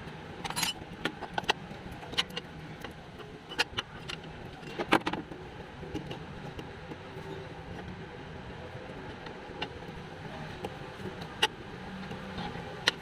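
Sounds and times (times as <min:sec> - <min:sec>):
metal tools clinking: 0:00.5 - 0:00.8.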